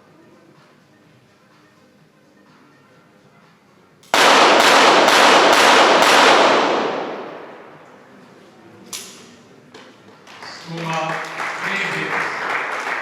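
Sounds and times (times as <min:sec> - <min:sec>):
pistol shots echoing: 0:04.0 - 0:08.1.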